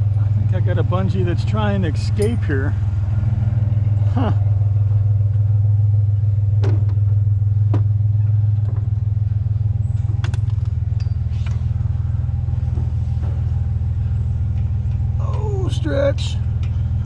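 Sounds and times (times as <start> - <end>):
truck engine idling: 0.0 - 17.0
sharp clicks and knocks: 10.1 - 11.6.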